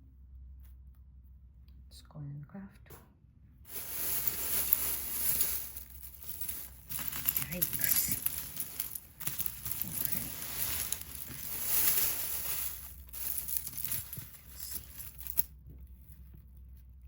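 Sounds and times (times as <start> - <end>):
packaging crinkling and rustling: 3.7 - 15.5.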